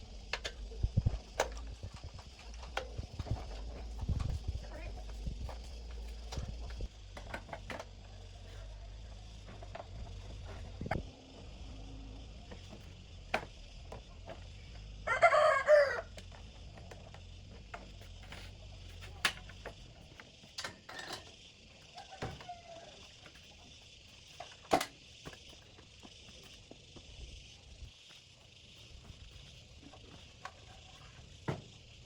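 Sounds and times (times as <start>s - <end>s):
rooster crowing: 15.0s - 16.2s, 21.9s - 23.1s.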